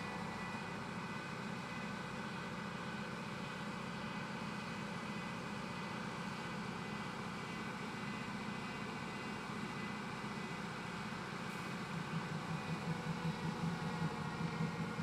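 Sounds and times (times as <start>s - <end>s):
faint steady tones: 11.5s - 15.0s.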